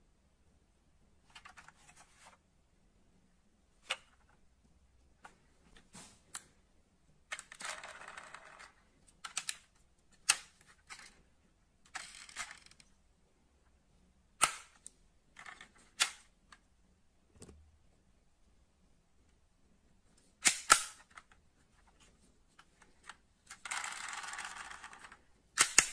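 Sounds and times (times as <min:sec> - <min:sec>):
metal model cars clicking: 0:23.0 - 0:25.9.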